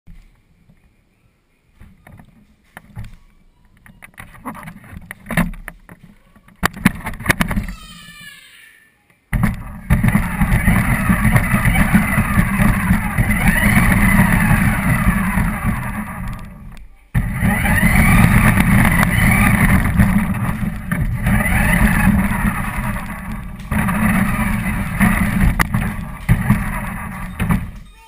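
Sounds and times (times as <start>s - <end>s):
heavy low rumble: 9.4s - 27.9s
rc car motor whining: 9.4s - 28.0s.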